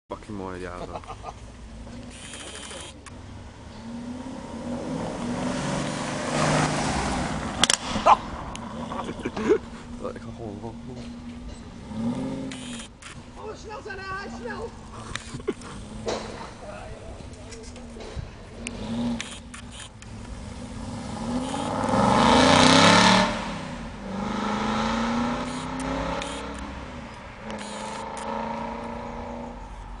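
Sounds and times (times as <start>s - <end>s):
sharp clicks: 2.0s - 3.2s, 12.4s - 13.2s, 18.6s - 20.4s, 25.4s - 28.4s
sports car accelerating past: 3.2s - 9.4s, 10.0s - 12.7s, 18.5s - 19.5s, 20.1s - 30.0s.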